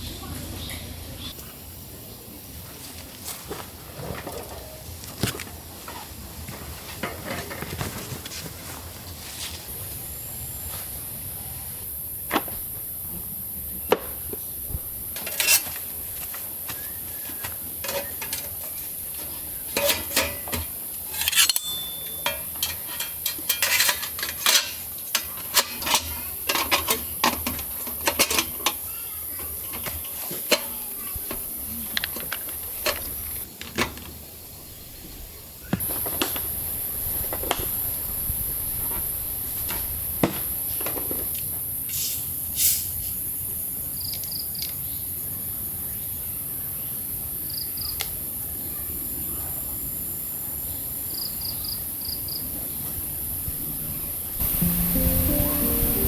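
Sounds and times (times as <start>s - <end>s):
cookware and utensils clinking: 17.8s - 28.8s
steady high hiss: 34.2s - 56.0s.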